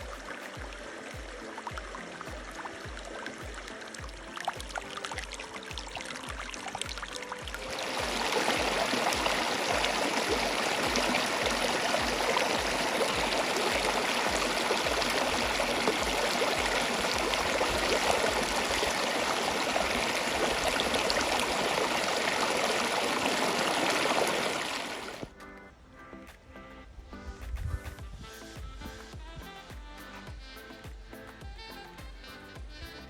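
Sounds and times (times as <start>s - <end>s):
flowing water rushing: 0.0s - 25.4s.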